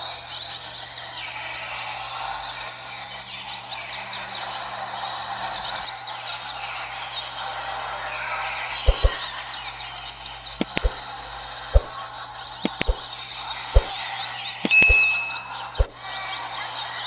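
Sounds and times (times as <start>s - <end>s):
sharp knocks: 8.9s - 9.2s, 10.6s - 11.0s, 12.7s - 13.0s, 13.8s - 14.0s, 14.7s - 15.1s.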